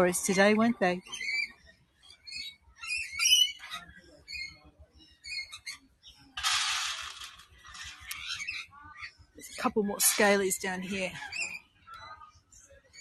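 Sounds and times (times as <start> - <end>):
lorikeets chattering: 1.0 - 6.2, 8.0 - 12.2.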